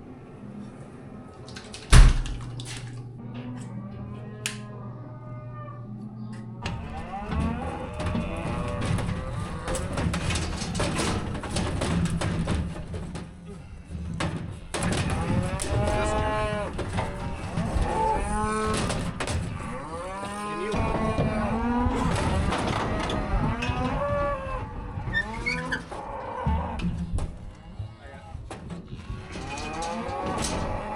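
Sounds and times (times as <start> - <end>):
cattle bawling: 3.1 - 12.0, 14.8 - 26.9
scattered knocks: 6.6 - 25.2.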